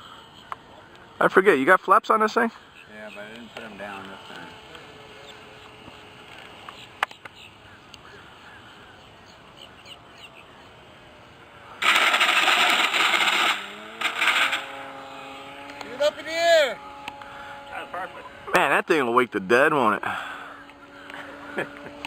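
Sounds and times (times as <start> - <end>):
model airplane engine: 2.6 - 22.0
faint bird chirps: 6.7 - 10.8.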